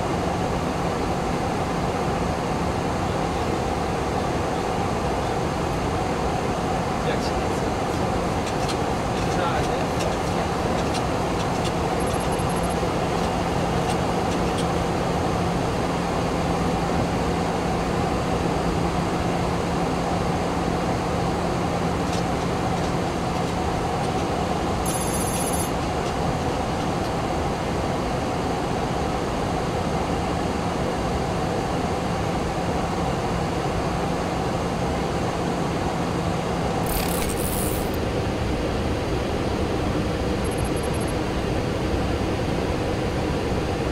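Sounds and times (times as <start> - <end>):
high-pitched electronic tones: 24.9 - 25.7.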